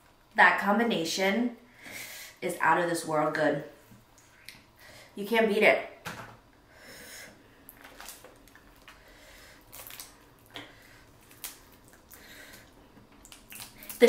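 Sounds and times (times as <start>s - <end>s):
person chewing food: 7.6s - 14.0s.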